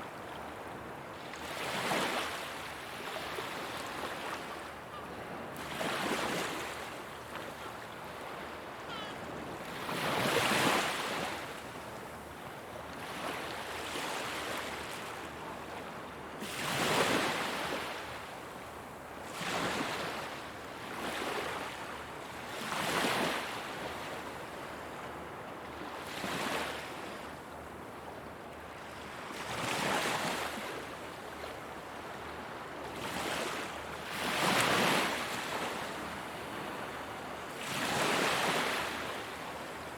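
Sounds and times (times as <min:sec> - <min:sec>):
ocean waves breaking on shore: 0:01.4 - 0:11.7, 0:32.3 - 0:39.6.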